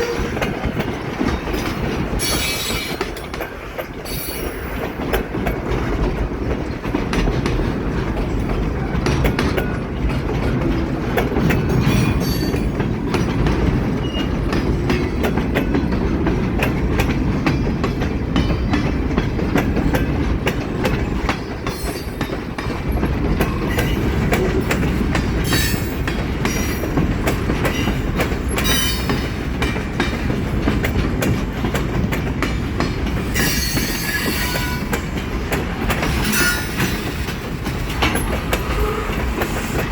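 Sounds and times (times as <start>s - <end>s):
wheels squealing on rails: 0.0s - 5.1s, 10.6s - 16.0s, 21.0s - 29.5s, 33.1s - 39.9s
train rumble: 0.0s - 39.9s
wheels clacking over rail joints: 0.0s - 39.9s.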